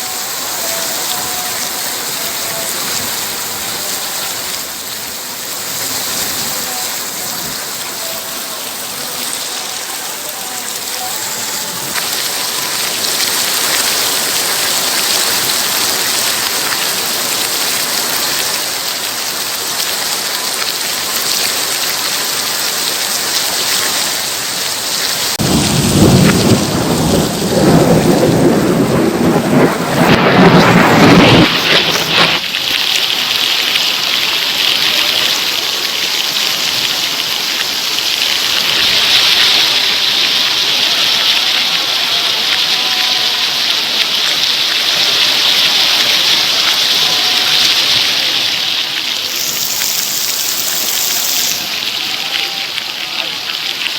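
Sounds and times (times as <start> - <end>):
heavy rain falling: 0.0 - 53.9
rolling thunderclap: 25.3 - 32.5.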